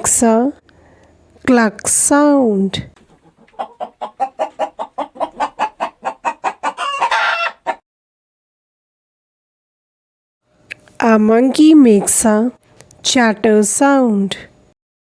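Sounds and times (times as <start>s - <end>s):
hen clucking: 3.0s - 7.8s, 11.3s - 12.6s.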